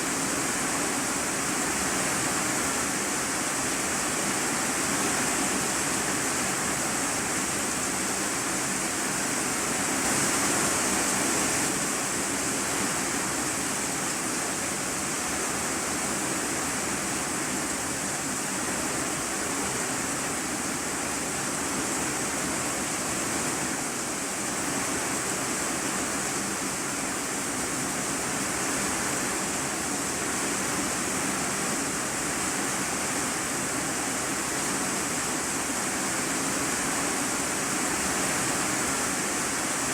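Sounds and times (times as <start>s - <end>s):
heavy rain on a metal roof: 0.0s - 39.9s.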